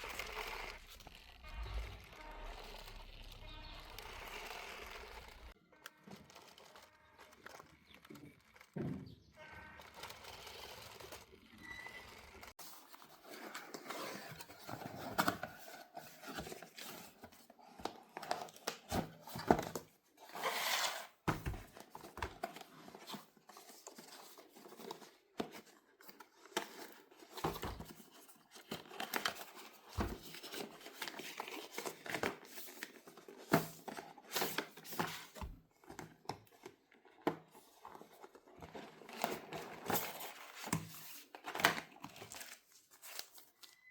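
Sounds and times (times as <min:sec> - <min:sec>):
packaging tearing: 0:00.0 - 0:08.8
plastic and cardboard crinkling: 0:00.0 - 0:43.9.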